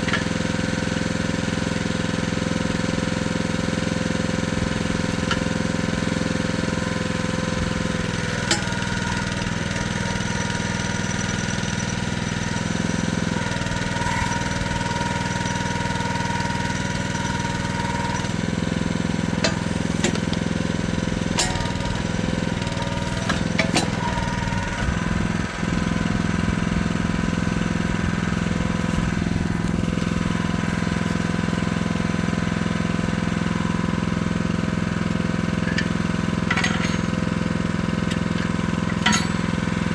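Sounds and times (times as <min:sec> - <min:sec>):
mini excavator engine running: 0:00.0 - 0:39.9
metallic clicks and clanks: 0:19.4 - 0:20.5, 0:21.2 - 0:24.3, 0:35.6 - 0:39.8.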